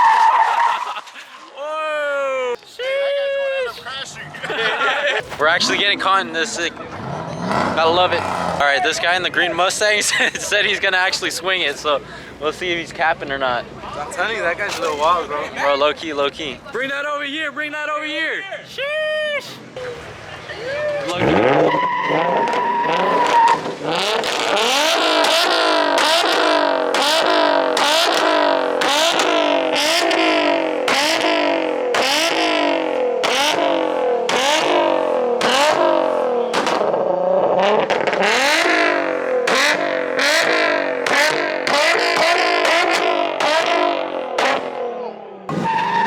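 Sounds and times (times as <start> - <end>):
car engine bouncing off rev limiter: 21.1 - 46.0.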